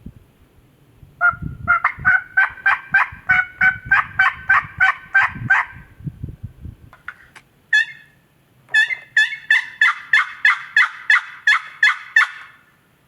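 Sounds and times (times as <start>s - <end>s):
turkey yelping: 1.2s - 5.8s, 7.7s - 12.6s.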